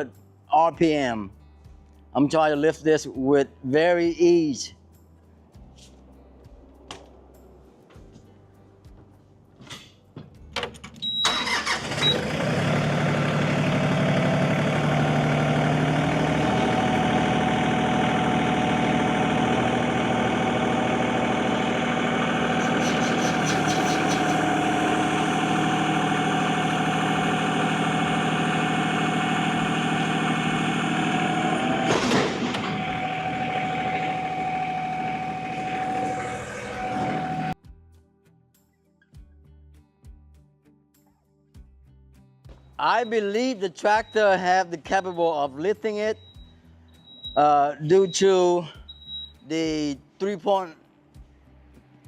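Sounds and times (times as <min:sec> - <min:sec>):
tractor diesel engine running: 0:11.0 - 0:37.6, 0:42.8 - 0:49.3.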